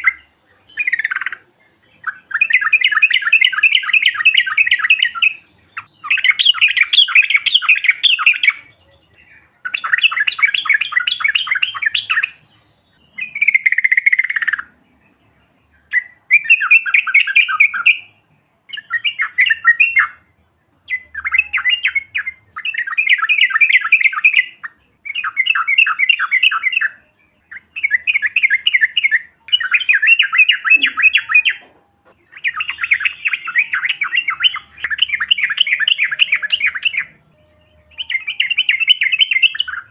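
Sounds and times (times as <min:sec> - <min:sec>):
bulbul chattering calls: 0:00.0 - 0:14.8, 0:20.9 - 0:37.2.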